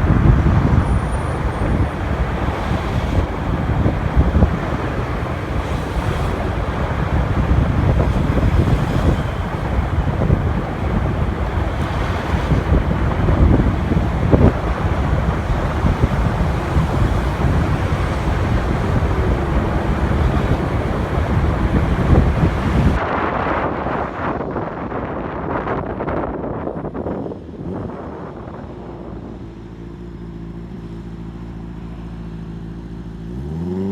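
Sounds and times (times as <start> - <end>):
motorcycle engine: 0.0 - 23.0
wind buffeting microphone: 0.0 - 31.4.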